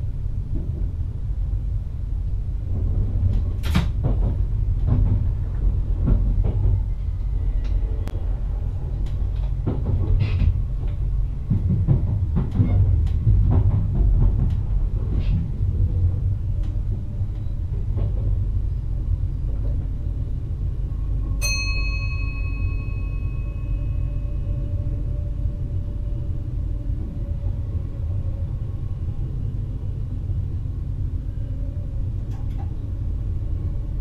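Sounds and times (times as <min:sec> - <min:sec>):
train rumble with wheel clatter: 0:00.0 - 0:34.0
multi-pitch ringing tone: 0:21.4 - 0:24.6.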